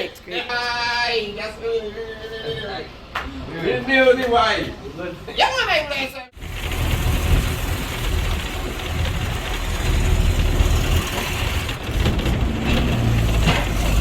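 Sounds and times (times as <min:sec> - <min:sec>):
vehicle engine and road noise: 0:06.4 - 0:14.0.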